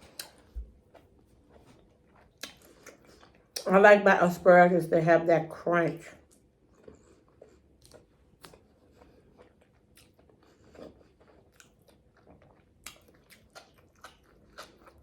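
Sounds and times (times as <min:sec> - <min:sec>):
chewing crunches: 0:00.0 - 0:03.7, 0:06.2 - 0:15.0
wet mouth clicks: 0:02.4 - 0:03.0.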